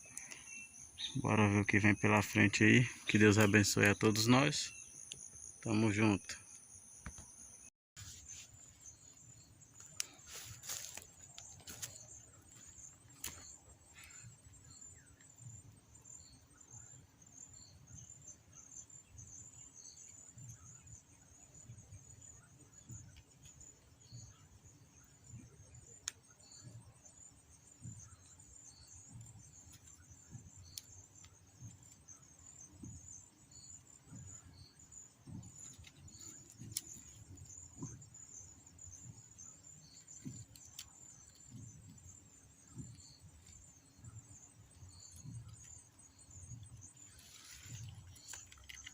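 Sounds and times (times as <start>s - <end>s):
insects chirring: 0.0s - 48.9s
clicks and rustles: 47.0s - 48.9s.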